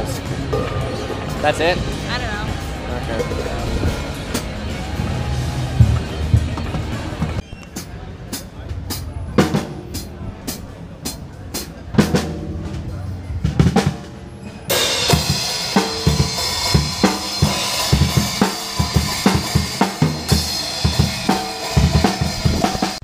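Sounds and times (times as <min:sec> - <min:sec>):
cymbals crashing: 0:00.0 - 0:05.8, 0:12.5 - 0:23.0
acoustic drum kit playing: 0:00.0 - 0:23.0.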